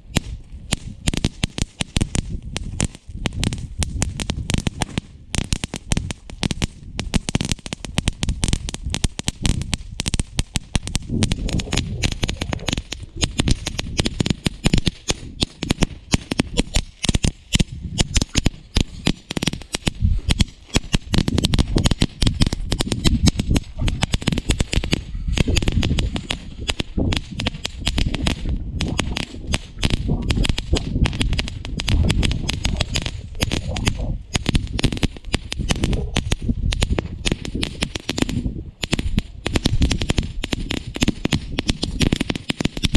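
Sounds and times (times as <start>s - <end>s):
firework fountain crackling: 0.0s - 42.9s.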